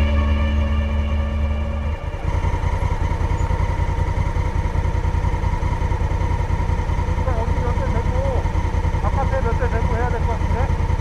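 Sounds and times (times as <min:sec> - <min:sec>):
background music: 0:00.0 - 0:03.2
motorbike engine idling: 0:00.0 - 0:11.0.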